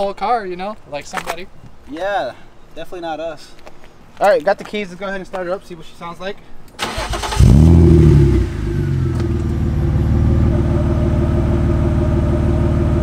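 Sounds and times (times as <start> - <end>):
car engine starting and idling: 6.8 - 13.0.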